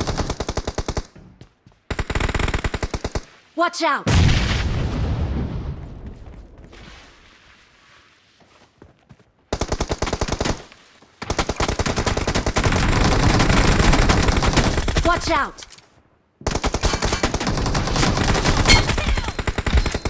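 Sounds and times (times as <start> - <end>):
heavy blast with deep rumble: 4.1 - 6.5.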